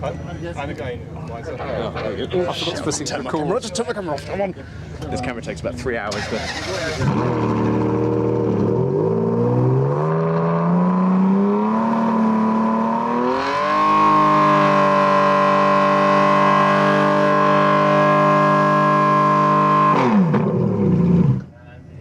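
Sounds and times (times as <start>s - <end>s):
car engine revving: 6.0s - 21.5s.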